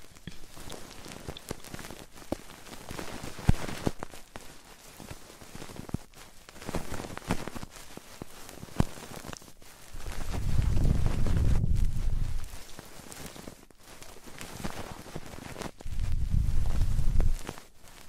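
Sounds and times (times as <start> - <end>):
crackly scratching on microphone: 0.0 - 18.0.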